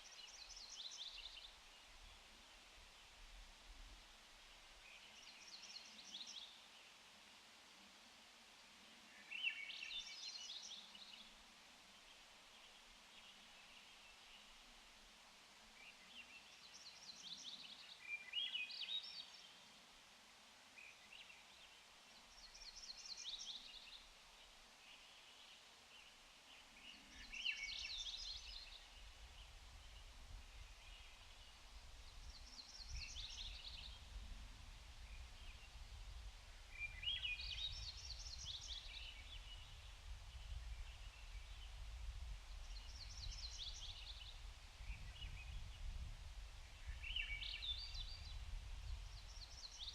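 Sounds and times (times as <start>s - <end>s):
faint steady hiss: 0.0s - 49.9s
songbird trilling song: 26.8s - 34.2s, 36.7s - 39.8s, 42.5s - 46.1s, 46.8s - 49.9s.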